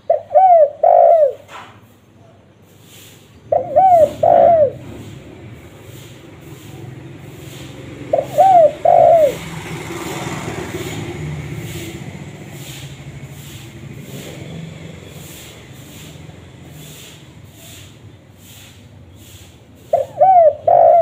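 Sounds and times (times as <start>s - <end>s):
dove cooing: 0.0s - 1.6s, 3.4s - 21.0s
low rumbling noise: 3.4s - 19.0s.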